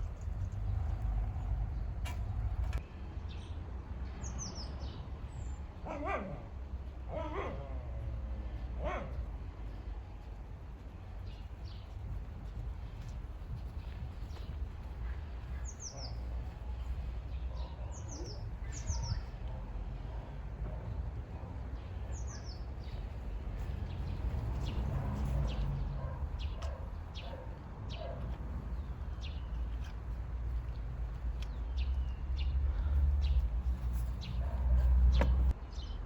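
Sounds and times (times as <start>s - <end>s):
small songbirds chirping: 0.0s - 5.7s, 9.8s - 36.0s
steady low rumble: 9.2s - 17.8s.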